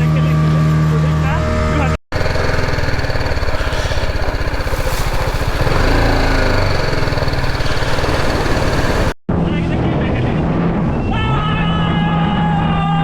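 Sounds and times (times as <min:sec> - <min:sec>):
small engine running: 0:02.1 - 0:09.2.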